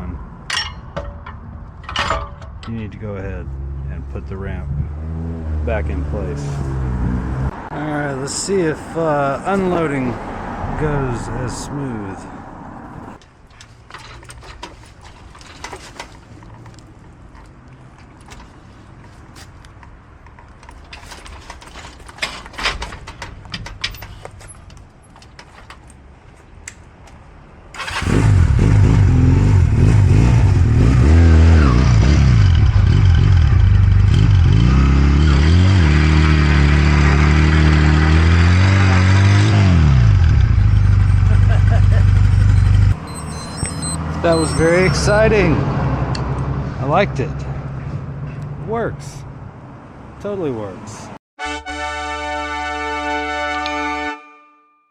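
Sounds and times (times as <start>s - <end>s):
clicks and knocks: 0.5s - 2.8s
motorcycle engine revving: 27.8s - 43.0s.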